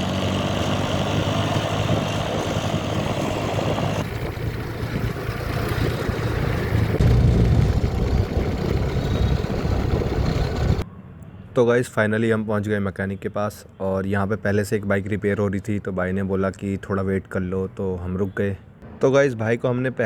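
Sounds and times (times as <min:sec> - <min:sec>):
scooter engine running: 0:00.0 - 0:10.8.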